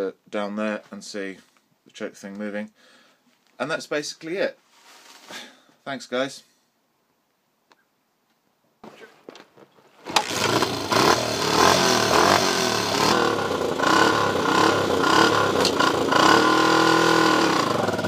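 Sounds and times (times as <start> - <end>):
motorcycle engine running: 10.1 - 18.0.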